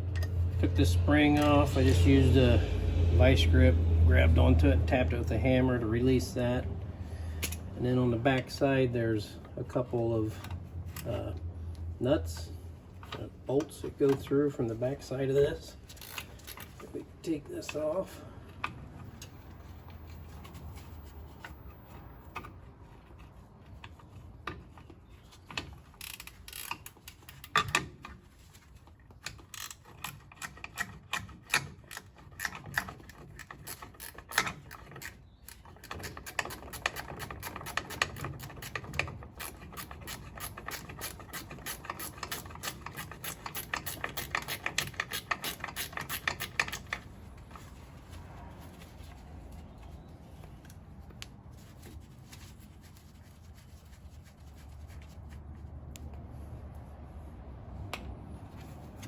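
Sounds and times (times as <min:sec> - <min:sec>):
socket ratchet clicking: 0:29.3 - 0:47.0.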